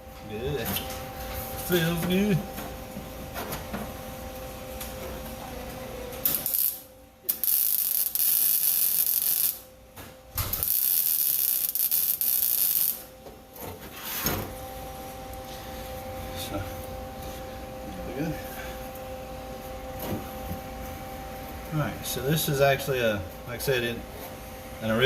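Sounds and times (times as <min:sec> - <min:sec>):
welder crackling hiss: 0:06.2 - 0:09.6, 0:10.4 - 0:13.1.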